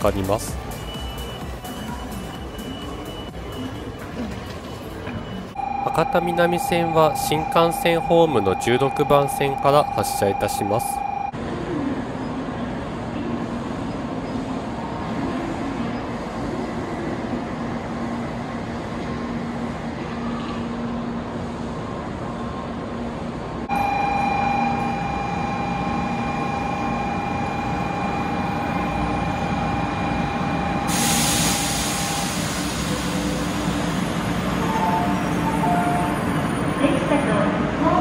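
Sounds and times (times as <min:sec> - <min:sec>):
station platform noise: 0:00.0 - 0:38.0
train pulling in: 0:00.0 - 0:38.0
air hissing: 0:30.9 - 0:34.2.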